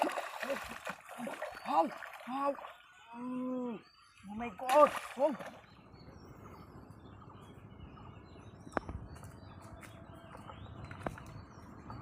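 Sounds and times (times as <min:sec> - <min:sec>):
bird chirps: 0:00.1 - 0:12.0.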